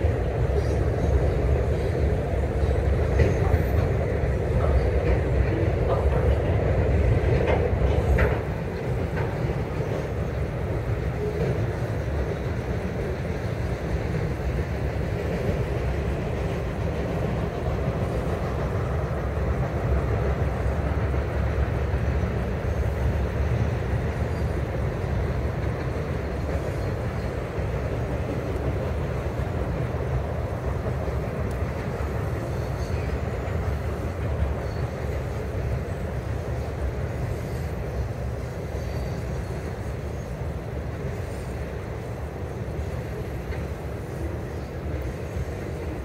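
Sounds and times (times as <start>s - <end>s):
freight train rumbling over bridge: 0.0s - 46.0s.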